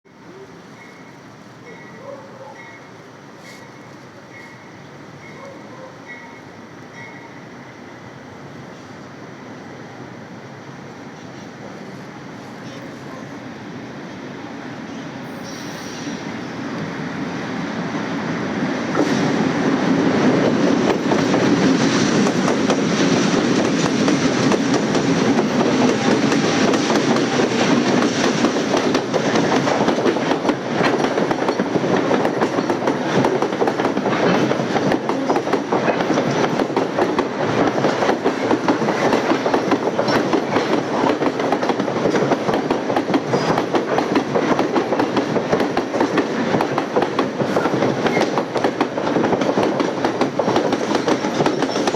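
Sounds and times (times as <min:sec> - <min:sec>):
train wheels clattering over rail joints: 0:18.9 - 0:51.9.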